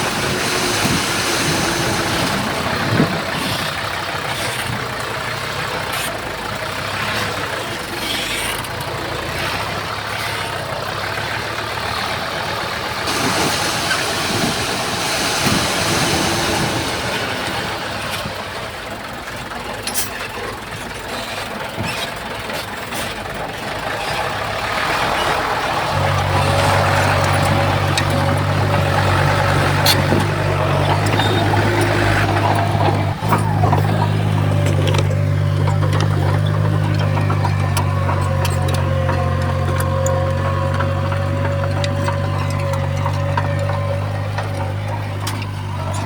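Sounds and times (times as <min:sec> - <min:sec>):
bulldozer diesel engine running: 0:00.0 - 0:46.0
rock and metal clanks: 0:21.7 - 0:46.0.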